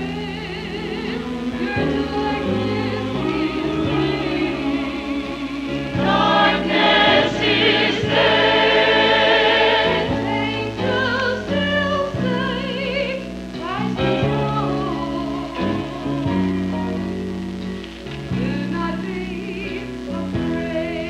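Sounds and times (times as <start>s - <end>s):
choir singing with accompaniment: 0.0s - 13.2s.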